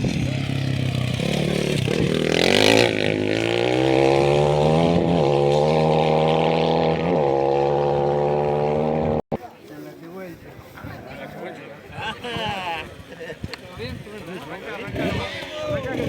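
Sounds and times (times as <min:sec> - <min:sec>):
rally engine revving hard: 0:00.0 - 0:09.2, 0:14.8 - 0:16.0.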